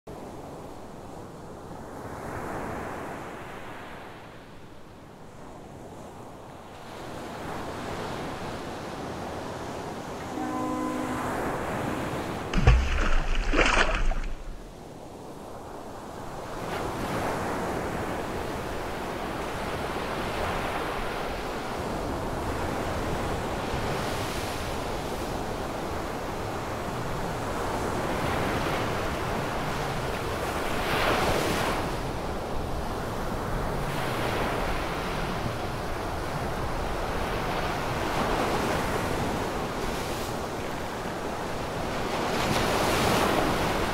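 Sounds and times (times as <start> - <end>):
ocean waves washing in: 10.2 - 14.8.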